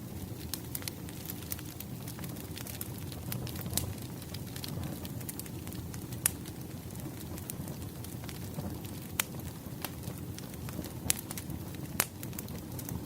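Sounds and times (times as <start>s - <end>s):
fire burning with crackles: 0.0s - 13.0s
wood fire pop: 8.3s - 13.0s.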